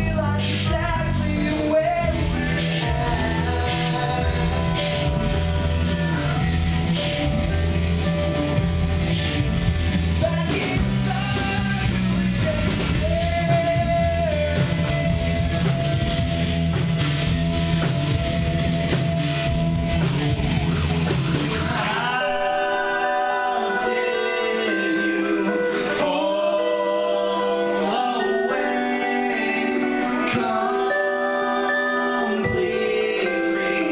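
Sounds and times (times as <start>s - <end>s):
person singing: 0.0s - 8.5s, 10.2s - 15.8s, 21.4s - 33.9s
live rock band: 0.0s - 33.9s.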